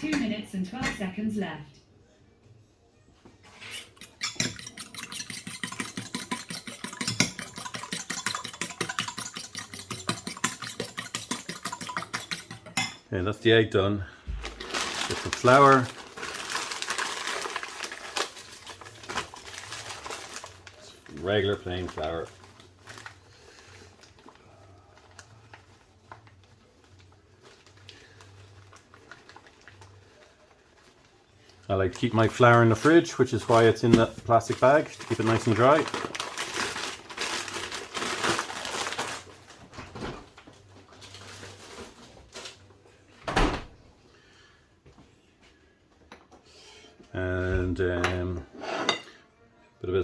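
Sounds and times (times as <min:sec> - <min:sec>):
utensil beating egg in bowl: 0:03.7 - 0:13.0
plastic bag rustling: 0:14.3 - 0:31.2, 0:31.8 - 0:42.8.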